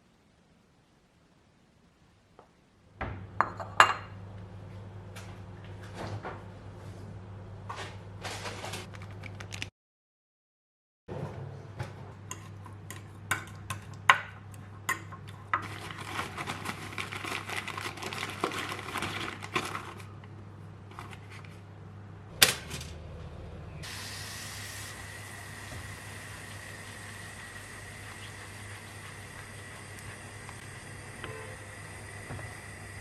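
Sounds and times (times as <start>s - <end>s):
low steady hum: 12.3s - 33.0s.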